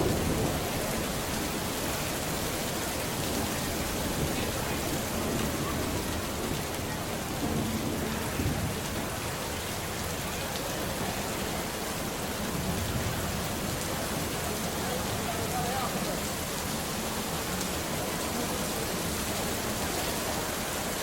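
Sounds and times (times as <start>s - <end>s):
low rumble of thunder: 0.0s - 10.3s, 11.6s - 15.1s
steady rain: 0.0s - 21.0s.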